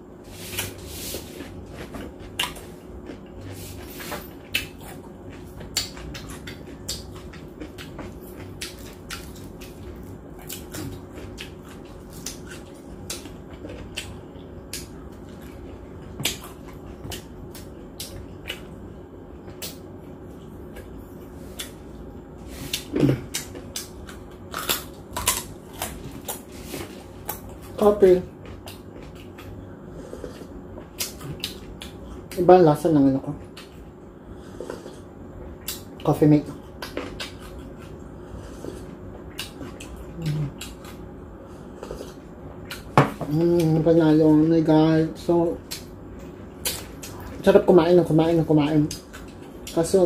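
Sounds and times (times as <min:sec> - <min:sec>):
wet chewing and lip smacks: 0:04.4 - 0:15.6, 0:30.2 - 0:32.4, 0:36.6 - 0:38.1, 0:39.3 - 0:41.0.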